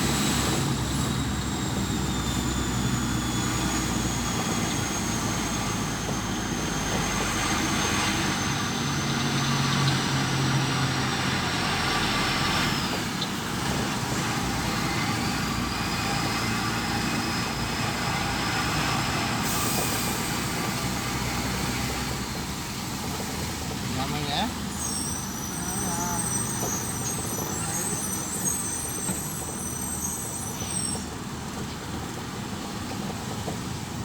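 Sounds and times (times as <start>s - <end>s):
road traffic with heavy trucks: 0.0s - 34.0s.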